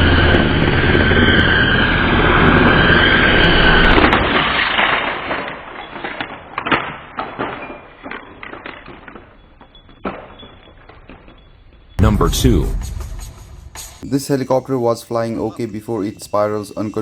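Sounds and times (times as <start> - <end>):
rc helicopter rotors whining: 0.0 - 4.2.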